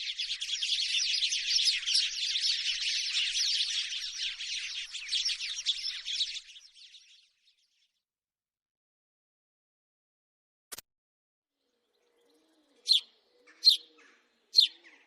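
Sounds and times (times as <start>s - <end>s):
sparrows chirping: 0.0s - 8.0s, 11.6s - 15.0s.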